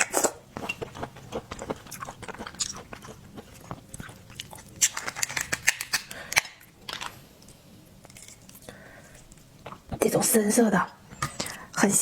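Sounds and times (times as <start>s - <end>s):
seafood shells crackling: 0.8s - 7.2s.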